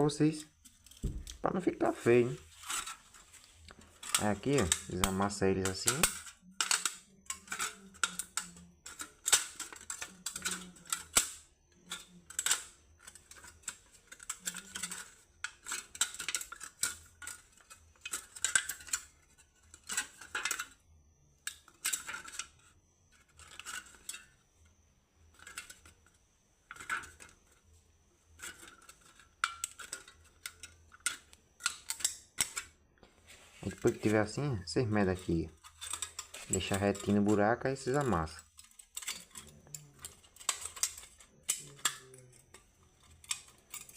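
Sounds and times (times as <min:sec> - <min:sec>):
aluminium can crinkling: 0:00.6 - 0:20.8, 0:33.3 - 0:43.9.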